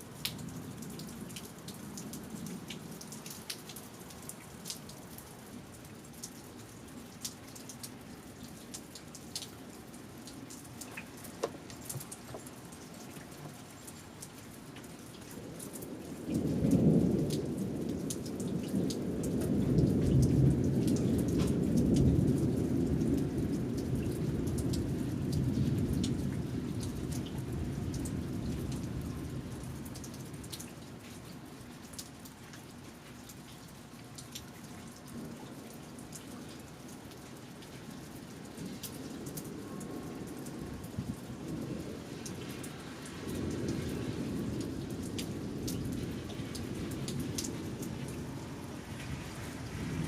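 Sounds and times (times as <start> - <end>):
steady rain: 0.0 - 50.0
water drips: 0.1 - 41.3
rolling thunder: 16.3 - 26.8, 48.9 - 50.0.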